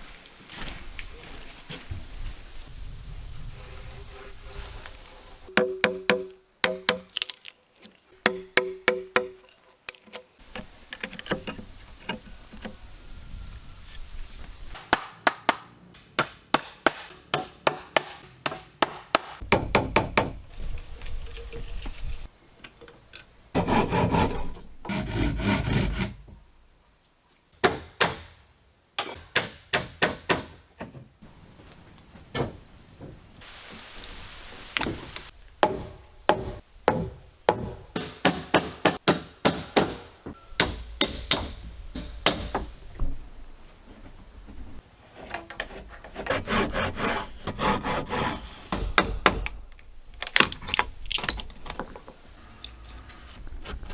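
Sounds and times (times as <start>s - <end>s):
rough scraping on wood: 3.5s - 5.5s, 23.6s - 26.3s, 43.5s - 48.8s, 50.6s - 53.9s
hammer driving nails: 14.8s - 20.4s, 48.7s - 49.6s.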